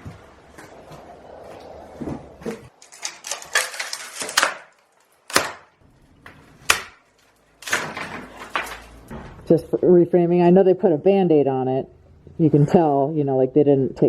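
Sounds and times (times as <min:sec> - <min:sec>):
loose debris clattering and scraping: 0:02.6 - 0:05.2, 0:07.1 - 0:09.2.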